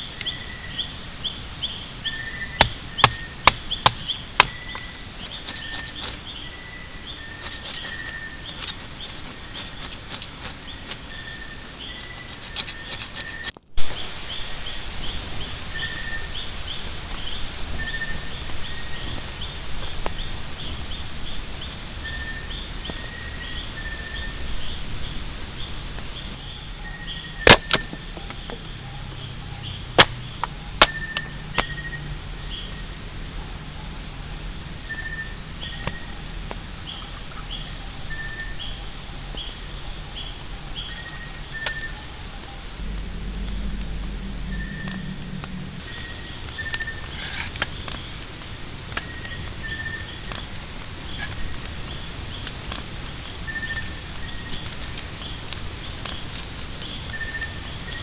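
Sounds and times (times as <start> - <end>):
sharp pops: 2.5 - 6.2, 27.4 - 28.7, 29.9 - 31.9.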